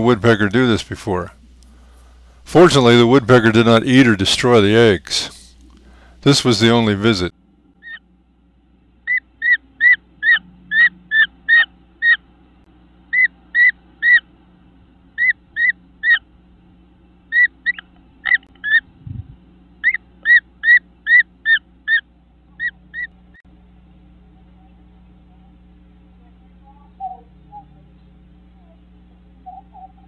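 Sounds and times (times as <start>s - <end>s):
bird whistled call notes: 29.4s - 30.0s.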